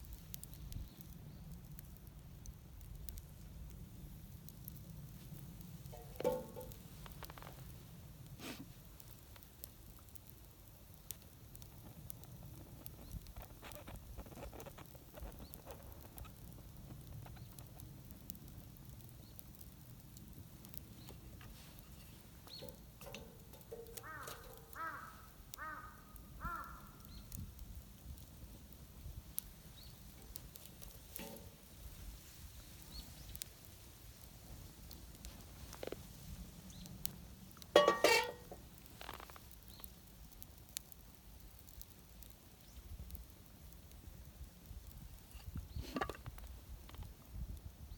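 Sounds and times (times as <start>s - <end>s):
wood fire crackling: 0.0s - 47.9s
bird calling: 23.9s - 27.0s.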